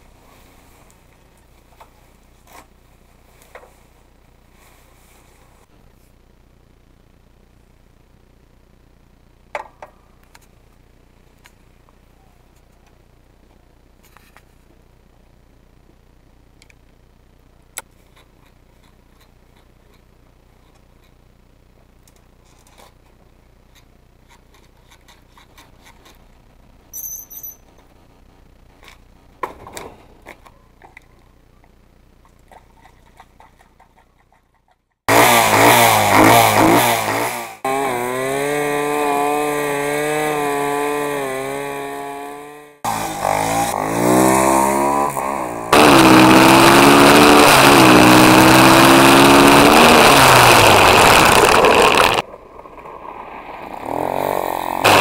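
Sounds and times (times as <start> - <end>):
small motorbike engine revving: 35.1 - 55.0.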